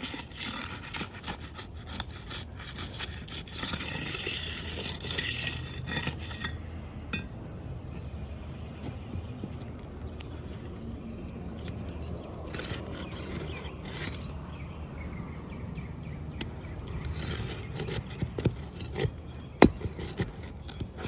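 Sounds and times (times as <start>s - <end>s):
shingles scraping and rustling: 0.0s - 6.6s, 8.9s - 14.4s, 16.9s - 21.0s
outdoor background hum: 0.0s - 21.0s.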